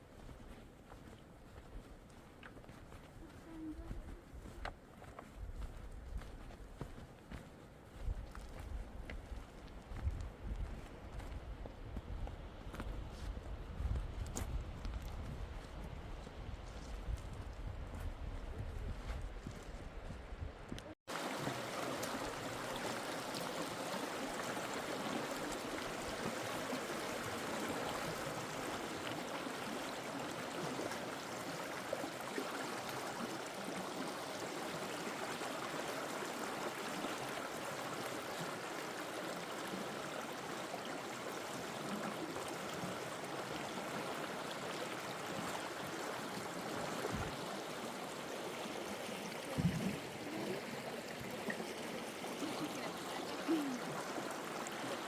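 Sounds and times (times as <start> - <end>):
water rushing: 21.1 - 55.0.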